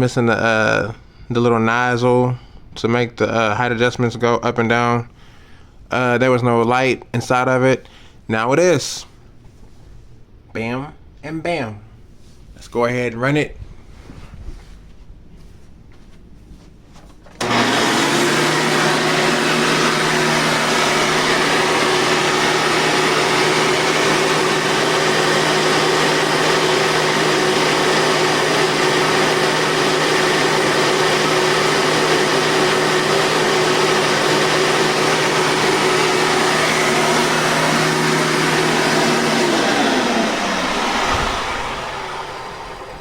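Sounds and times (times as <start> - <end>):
vacuum cleaner motor running: 17.4 - 43.0.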